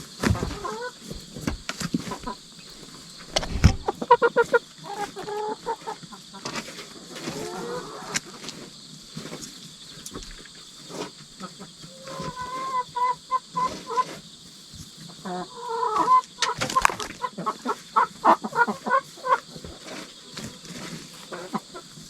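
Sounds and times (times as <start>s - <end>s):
high insect chirr: 0.0s - 22.0s
hens clucking: 0.1s - 9.4s, 10.0s - 22.0s
sharp knocks and scratches: 0.1s - 12.7s, 19.2s - 22.0s.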